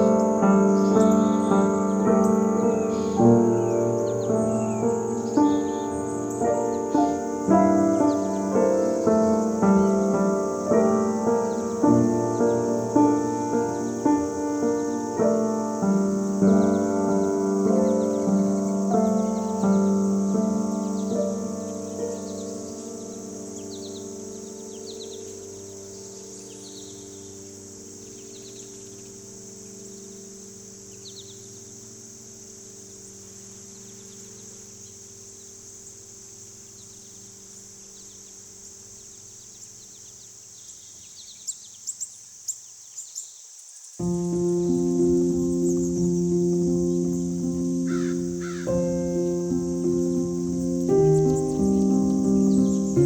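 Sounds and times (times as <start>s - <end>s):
soft piano music: 0.0s - 41.7s, 44.0s - 53.0s
high insect drone: 0.0s - 53.0s
sustained low music notes: 44.0s - 53.0s
crow cawing: 47.9s - 48.9s.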